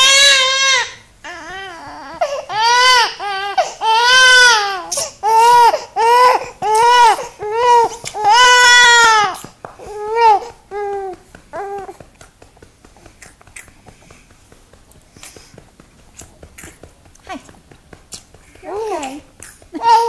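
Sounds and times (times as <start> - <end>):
infant crying: 0.0 - 12.0, 19.8 - 20.0.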